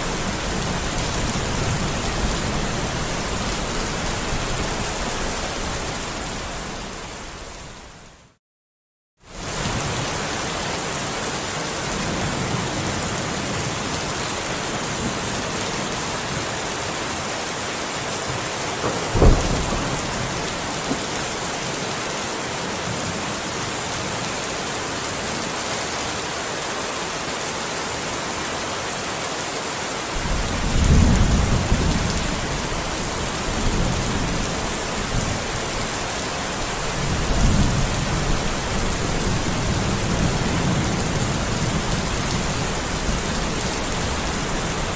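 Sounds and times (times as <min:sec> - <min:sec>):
low thunder rumbles: 0:18.8 - 0:21.4, 0:30.2 - 0:44.9
sharp crack of thunder: 0:18.8 - 0:21.4, 0:30.2 - 0:35.5
rain hissing: 0:18.8 - 0:22.1, 0:30.1 - 0:44.9.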